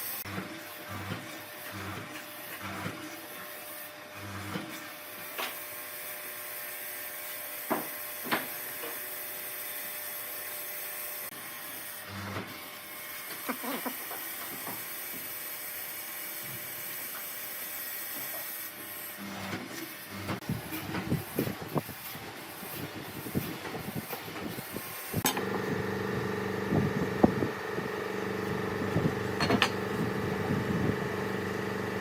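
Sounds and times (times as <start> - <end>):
power tool motor whining: 24.8 - 32.0.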